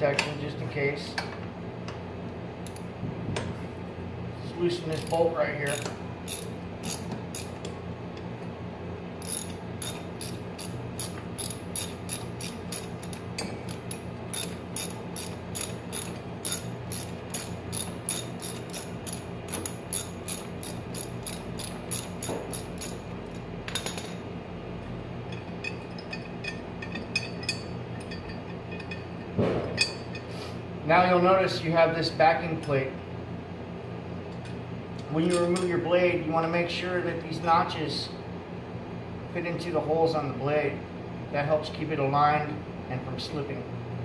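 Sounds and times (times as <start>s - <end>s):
ratchet wrench clicking: 4.9s - 7.7s, 9.2s - 23.1s.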